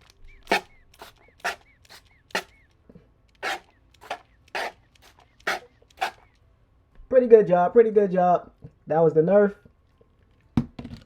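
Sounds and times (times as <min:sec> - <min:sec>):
toy water gun hissing squirts: 0:00.0 - 0:02.7, 0:03.3 - 0:06.4.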